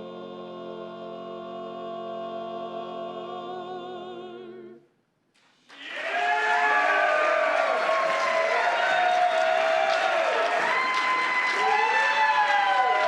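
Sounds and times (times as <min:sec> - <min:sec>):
barbershop quartet singing a cappella: 0:00.0 - 0:04.8.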